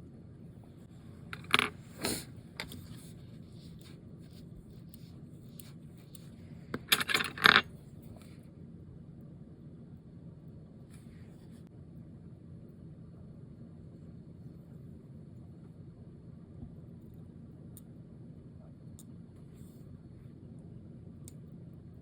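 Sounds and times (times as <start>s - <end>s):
steady low hum: 0.0s - 22.0s
small metal tools clinking: 6.8s - 7.7s.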